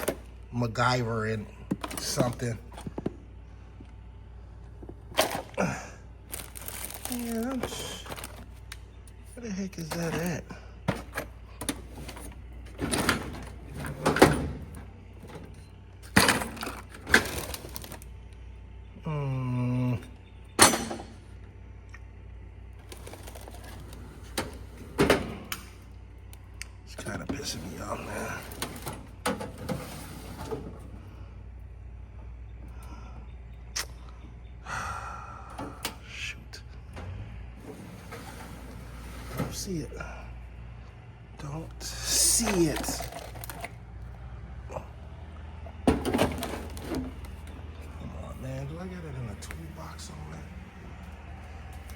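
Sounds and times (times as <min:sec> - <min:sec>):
steady low hum: 0:00.0 - 0:51.9
objects clattering: 0:04.8 - 0:08.7, 0:09.8 - 0:18.1, 0:27.3 - 0:30.9, 0:42.1 - 0:43.8, 0:45.7 - 0:48.0
breathy sigh: 0:34.6 - 0:35.9.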